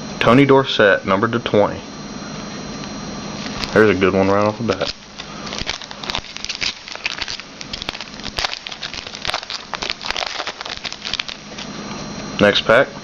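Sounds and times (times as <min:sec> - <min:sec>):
wrapper crinkling: 0:03.4 - 0:11.8.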